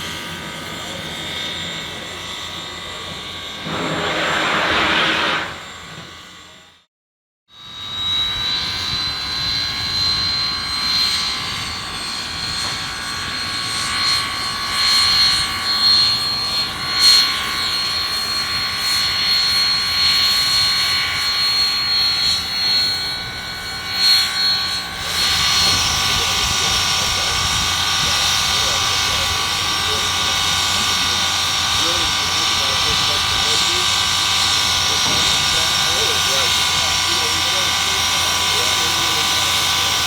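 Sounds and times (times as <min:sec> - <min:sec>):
high-pitched steam train squeal: 0:00.0 - 0:06.7, 0:07.6 - 0:40.0
rushing steam noise: 0:03.6 - 0:06.1, 0:24.8 - 0:40.0.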